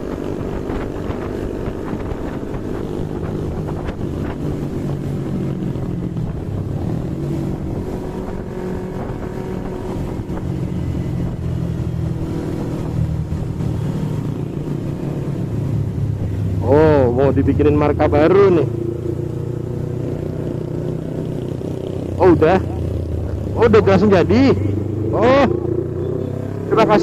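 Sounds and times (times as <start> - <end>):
wind on microphone: 0.0 - 17.2
motorcycle engine running: 0.0 - 27.0.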